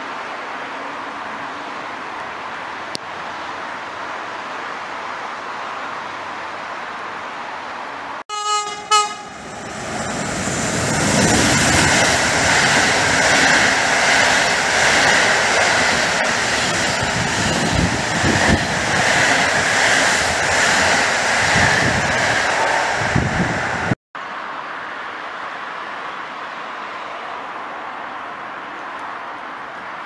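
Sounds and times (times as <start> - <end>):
train horn blast: 8.3 - 9.4
train wheels rushing on rail: 8.6 - 24.0.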